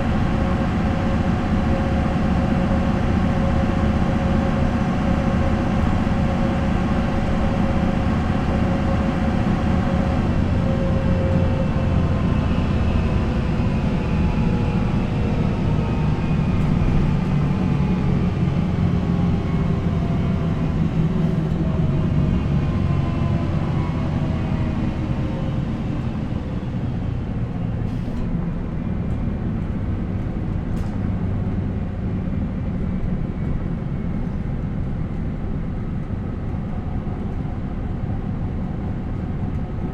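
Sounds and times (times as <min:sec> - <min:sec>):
bus engine and transmission whine: 0:00.0 - 0:39.9.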